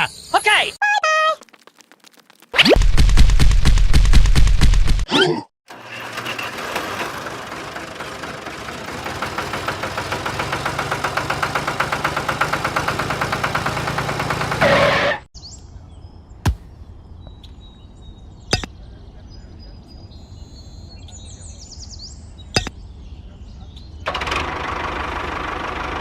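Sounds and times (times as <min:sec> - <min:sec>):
small engine running: 0:05.7 - 0:15.2, 0:24.1 - 0:26.0
faint bird chirps: 0:15.4 - 0:24.1.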